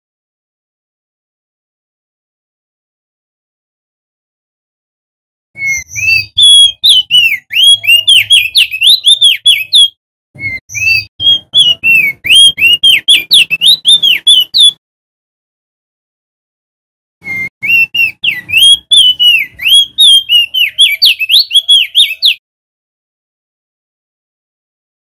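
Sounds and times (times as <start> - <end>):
bird singing whistled notes: 5.6 - 14.8, 17.2 - 22.4.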